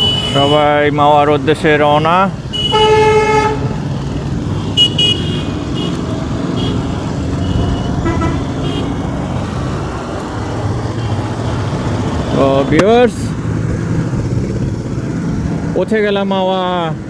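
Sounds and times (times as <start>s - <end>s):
motorcycle engine: 0.0s - 16.8s
road noise with wind rush: 0.0s - 17.0s.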